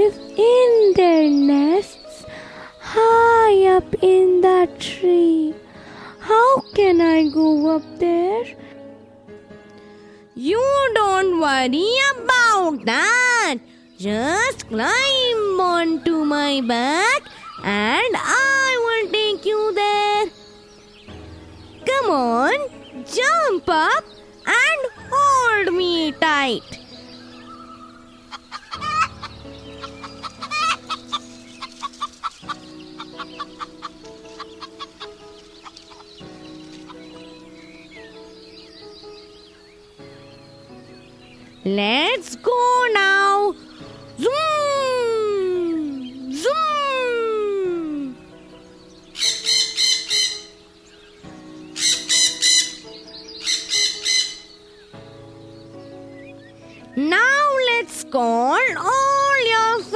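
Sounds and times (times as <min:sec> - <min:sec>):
soft background music: 0:00.0 - 0:59.9
quick high bird chirps: 0:49.1 - 0:50.6, 0:51.7 - 0:54.7.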